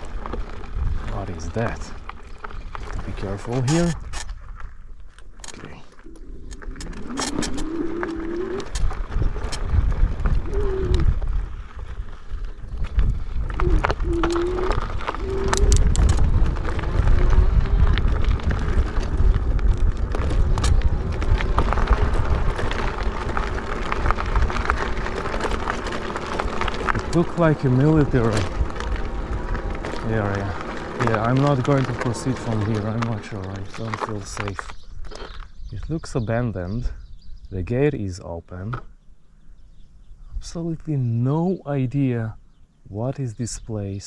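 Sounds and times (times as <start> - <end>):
bike rattling and clicking: 0.0 - 35.7
tyre noise: 0.0 - 35.9
wind rumble on microphone: 0.0 - 44.0
short wavering whines: 6.0 - 8.8.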